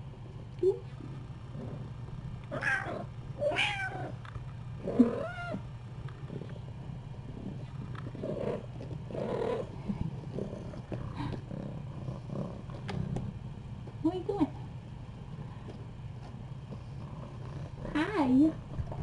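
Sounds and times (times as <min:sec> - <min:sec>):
cat meowing: 0:02.6 - 0:04.2.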